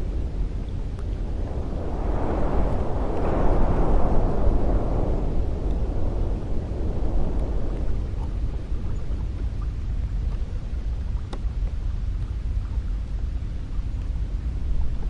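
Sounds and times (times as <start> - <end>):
wind blowing with low rumble: 0.0 - 15.0
faint ticks: 7.3 - 13.2, 13.8 - 14.2.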